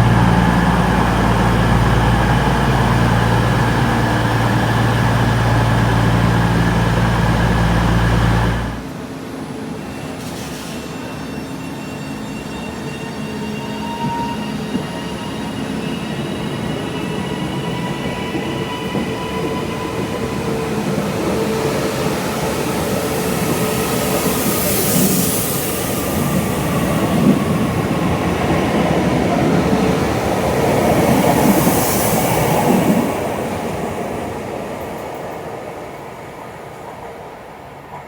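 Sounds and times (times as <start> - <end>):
loud low engine rumble: 0.0 - 8.9.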